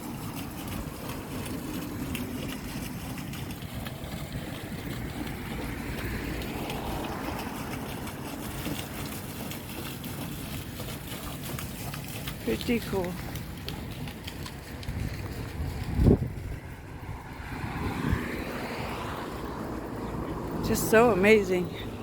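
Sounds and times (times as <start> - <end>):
outdoor traffic noise: 0.0 - 22.0
vehicle passing: 0.0 - 22.0.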